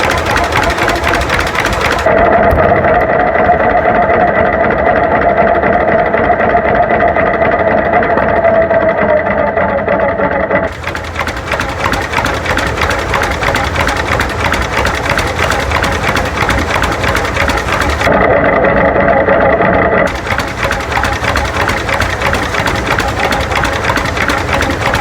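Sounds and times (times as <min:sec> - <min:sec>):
tractor engine clattering: 0:00.0 - 0:09.3, 0:10.3 - 0:18.1, 0:20.1 - 0:25.0
loud steady drone: 0:00.0 - 0:25.0.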